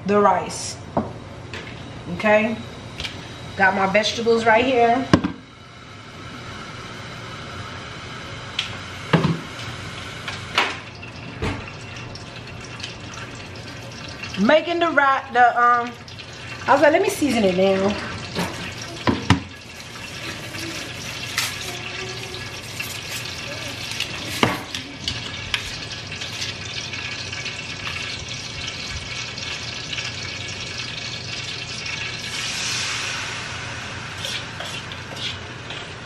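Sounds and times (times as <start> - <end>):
rice and vegetables sizzling in pot: 12.9 - 36.0.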